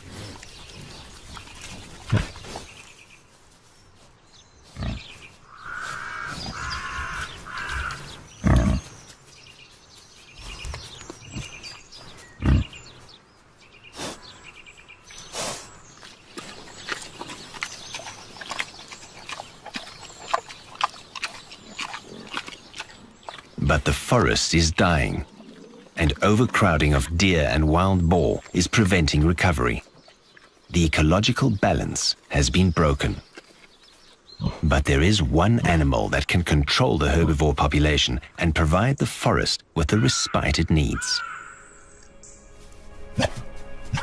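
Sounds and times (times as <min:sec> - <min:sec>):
faint birds chirping: 0:00.0 - 0:44.0
boar grunting: 0:04.7 - 0:09.0, 0:12.4 - 0:12.9, 0:15.2 - 0:29.9, 0:34.4 - 0:35.8
crunching and cracking while feeding: 0:15.3 - 0:23.6, 0:33.2 - 0:34.2.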